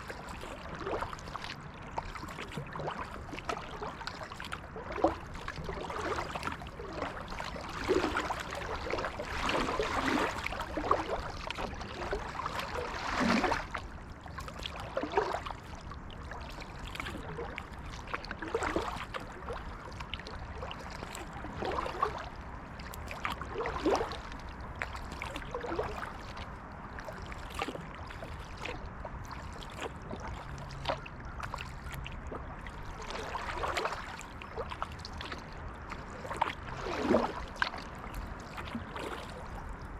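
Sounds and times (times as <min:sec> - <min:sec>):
water dripping and gurgling: 0:00.0 - 0:19.6
kayak paddle strokes in water: 0:00.0 - 0:39.9.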